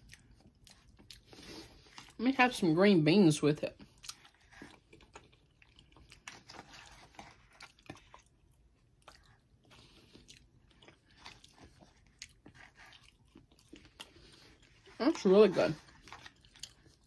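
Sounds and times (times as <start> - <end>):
faint chewing and mouth sounds: 0.0 - 17.0.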